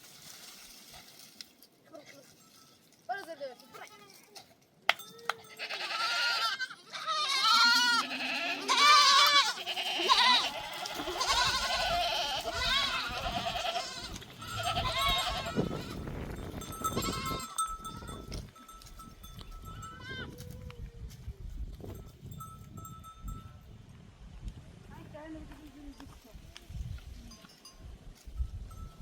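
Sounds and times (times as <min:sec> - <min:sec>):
goat bells ringing: 0:01.8 - 0:23.8, 0:26.8 - 0:29.0
goats bleating: 0:05.4 - 0:16.0, 0:16.8 - 0:18.2.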